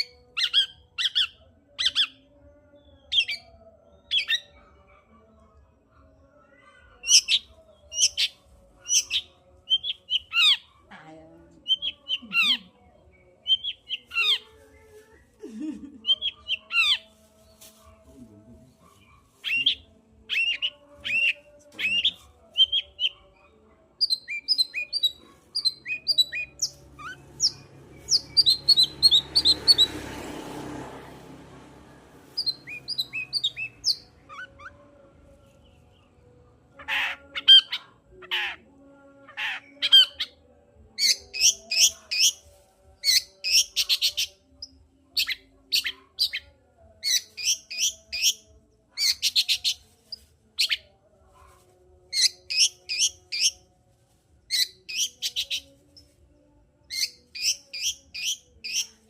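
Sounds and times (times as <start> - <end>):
shrike chattering song: 19.4 - 23.2.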